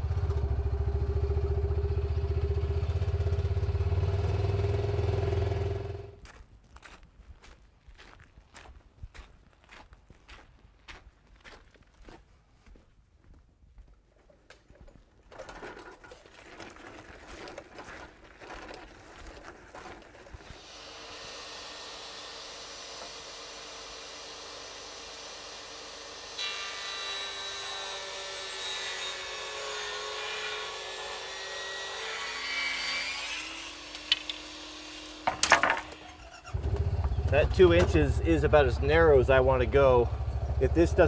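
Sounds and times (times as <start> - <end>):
power saw cutting wood: 19.8 - 41.0.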